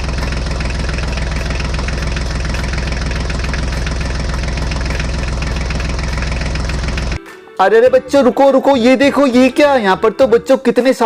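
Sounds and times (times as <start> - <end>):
tractor engine chugging: 0.0 - 7.2.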